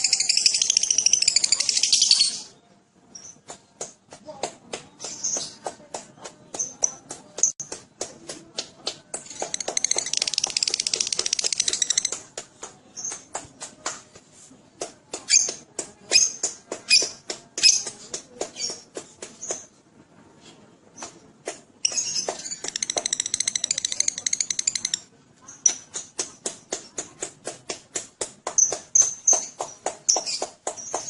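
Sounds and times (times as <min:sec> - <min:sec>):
lovebird chirping and trilling: 0:00.0 - 0:02.5, 0:21.8 - 0:25.0.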